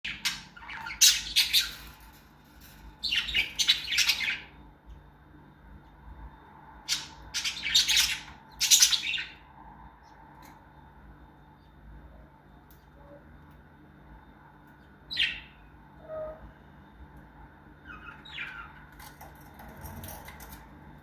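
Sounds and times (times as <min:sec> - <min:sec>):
parrots chirping and squawking: 0:00.1 - 0:04.6, 0:06.8 - 0:09.5, 0:15.1 - 0:16.5, 0:17.8 - 0:20.6.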